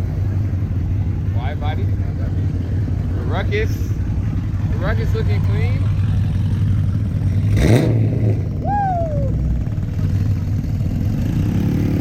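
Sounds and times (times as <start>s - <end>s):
vehicle engine idling: 0.0s - 7.6s
engine revving: 6.4s - 10.2s, 10.9s - 12.0s.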